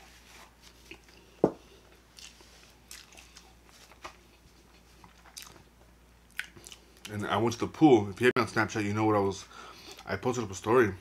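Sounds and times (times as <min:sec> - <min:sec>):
chewing with wet mouth clicks: 0:02.1 - 0:03.6, 0:04.7 - 0:07.2.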